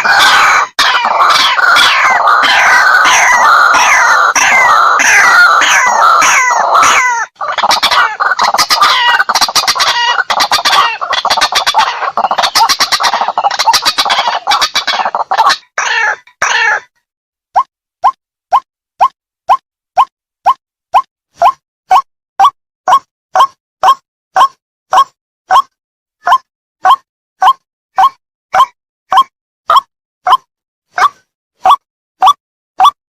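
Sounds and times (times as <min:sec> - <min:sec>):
bird calls with falling notes: 0:00.0 - 0:16.9.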